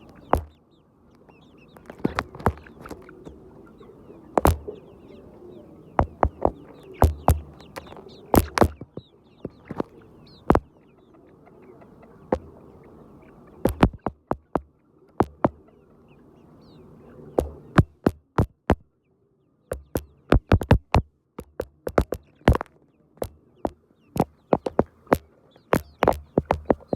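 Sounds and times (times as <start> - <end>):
sharp taps and knocks: 0.0 - 0.6, 1.8 - 3.1, 4.4 - 4.7, 6.0 - 9.9, 10.5 - 10.7, 13.6 - 15.6, 17.4 - 18.8, 19.7 - 26.9
chickens cheeping and clucking: 0.0 - 26.9.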